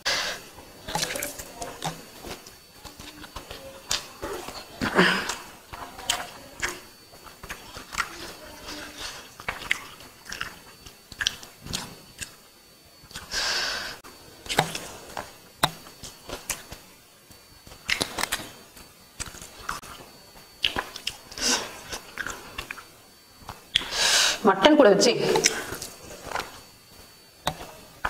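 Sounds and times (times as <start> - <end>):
person chewing and lip-smacking: 0.9 - 12.4, 13.1 - 13.4, 14.4 - 16.8, 17.7 - 18.5, 20.6 - 24.0.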